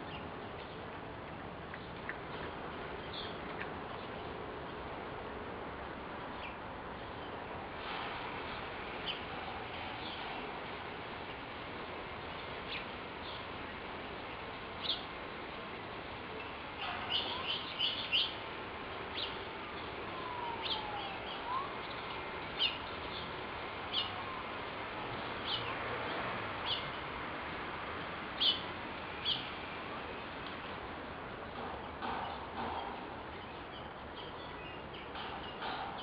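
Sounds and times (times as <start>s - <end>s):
steady outdoor hiss: 0.0s - 36.0s
small birds chirping: 12.2s - 15.6s, 16.4s - 24.2s, 25.2s - 27.0s, 28.4s - 29.6s.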